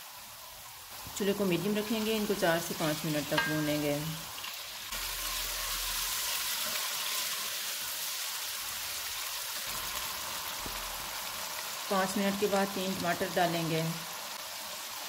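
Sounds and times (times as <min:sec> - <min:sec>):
chicken frying in hot oil: 0:00.0 - 0:15.0.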